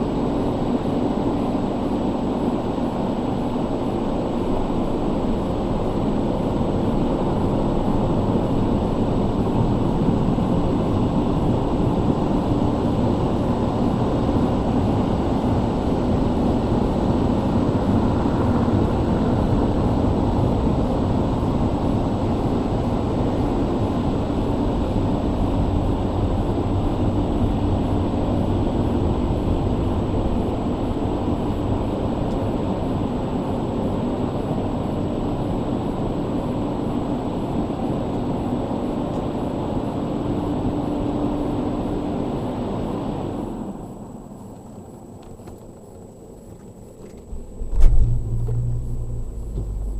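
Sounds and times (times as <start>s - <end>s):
car wash machinery roaring: 47.3s - 49.9s.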